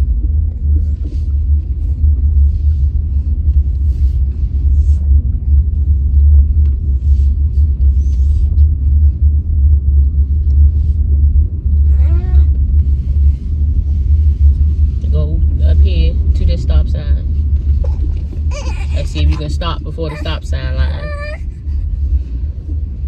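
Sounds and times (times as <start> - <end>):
car engine and road drone: 0.0 - 23.0.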